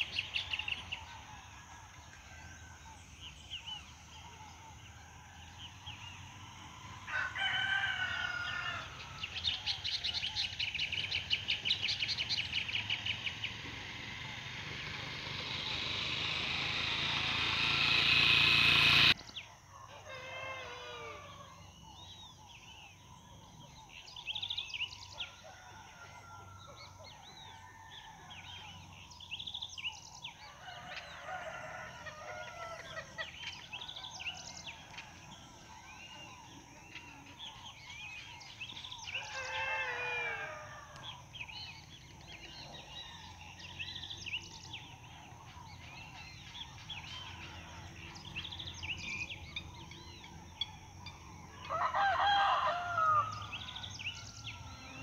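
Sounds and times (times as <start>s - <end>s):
loud bird call: 5.6s - 22.8s, 29.9s - 55.0s.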